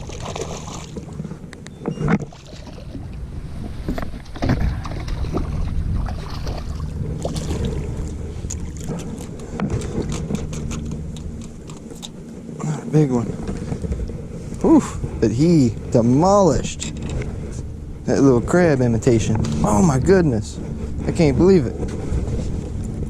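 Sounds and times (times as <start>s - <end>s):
water splashes: 0.0s - 1.4s, 2.1s - 11.3s
steady low hum: 0.0s - 23.0s.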